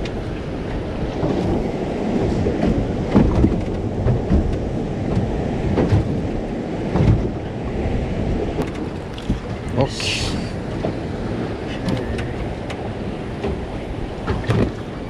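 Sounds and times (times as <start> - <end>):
water and hull rumble: 0.0 - 15.0
wind buffeting microphone: 0.0 - 15.0
hull knocks: 6.9 - 7.4.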